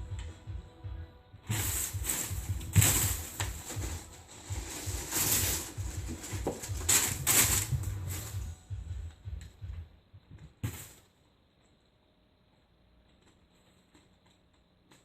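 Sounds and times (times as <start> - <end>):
paper crinkling and rustling: 1.5 - 8.5.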